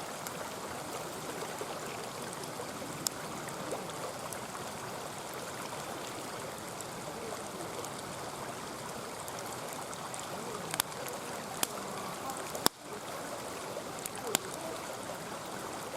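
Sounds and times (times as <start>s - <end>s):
stream babbling: 0.0s - 15.9s
campfire crackles and pops: 0.1s - 15.9s.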